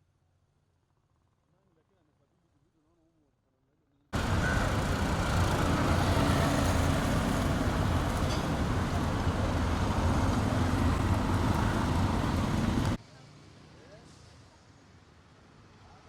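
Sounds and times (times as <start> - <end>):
road traffic noise: 4.2 - 13.0.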